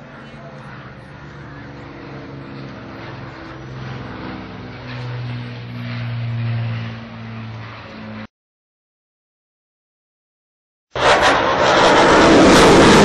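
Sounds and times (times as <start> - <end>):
propeller aircraft engine droning: 0.0 - 8.3, 11.0 - 13.0.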